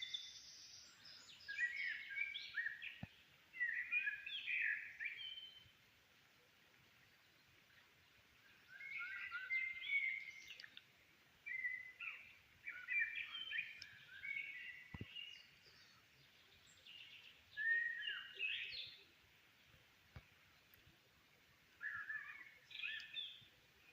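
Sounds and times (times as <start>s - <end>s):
songbird warbling: 8.6s - 10.8s, 11.5s - 15.9s, 16.6s - 19.0s, 21.8s - 23.4s.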